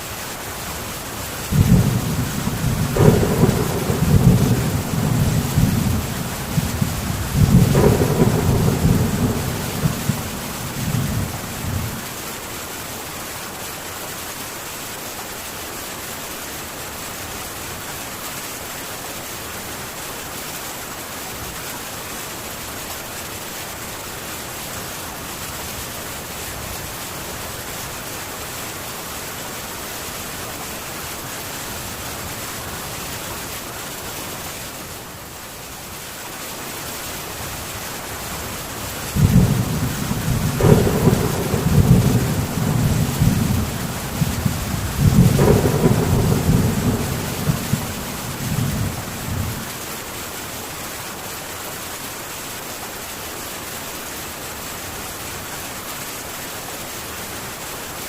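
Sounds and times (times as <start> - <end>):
rain on a tin roof: 0.0 - 58.0
thunder rumbling: 1.4 - 12.1, 39.1 - 49.8.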